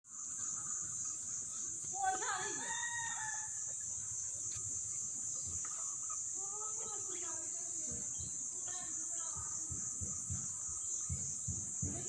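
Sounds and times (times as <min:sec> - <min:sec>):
rooster crowing: 0:02.3 - 0:03.7.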